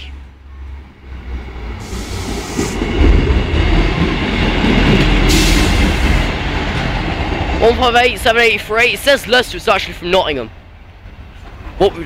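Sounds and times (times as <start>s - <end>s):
train low rumble: 0.0s - 12.0s
wheels clattering over rails: 1.6s - 9.6s
short rush of hiss: 1.8s - 2.9s, 5.2s - 6.3s.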